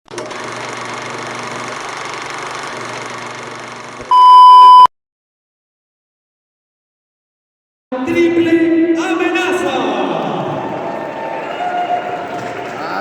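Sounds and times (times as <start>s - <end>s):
electronic beep: 4.1s - 4.9s.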